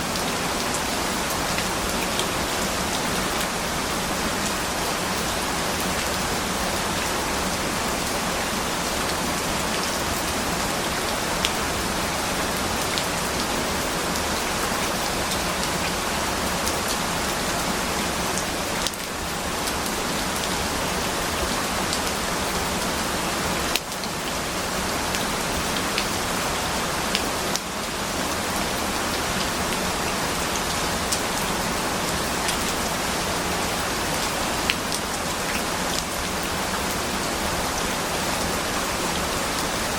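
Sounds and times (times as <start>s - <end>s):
dense rainfall: 0.0s - 39.9s.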